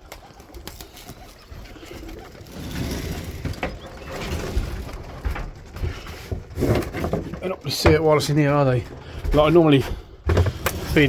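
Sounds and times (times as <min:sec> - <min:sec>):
pigeons cooing: 0:00.0 - 0:07.4.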